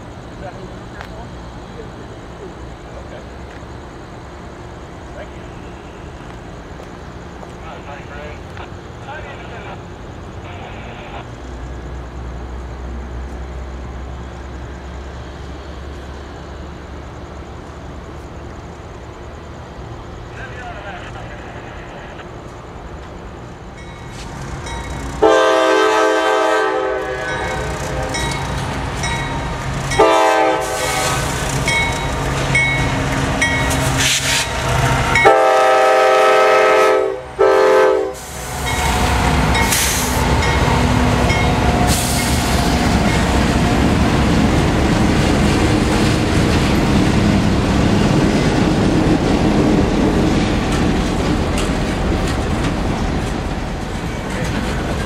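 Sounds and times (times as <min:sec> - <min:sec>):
locomotive rumble: 0:00.0 - 0:55.0
locomotive horn blasts: 0:25.2 - 0:28.2, 0:30.0 - 0:31.1, 0:35.2 - 0:38.3
wheels clacking over rail joints: 0:26.9 - 0:35.4, 0:38.6 - 0:55.0.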